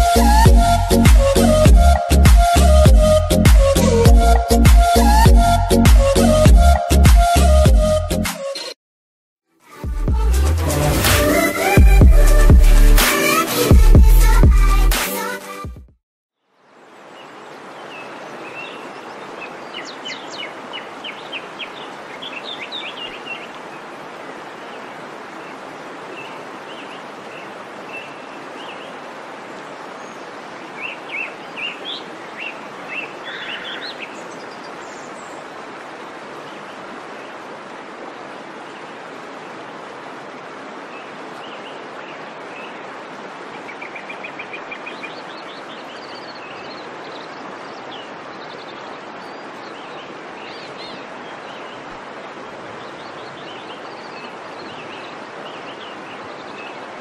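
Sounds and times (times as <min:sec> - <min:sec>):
birds chirping: 0:30.8 - 0:35.3.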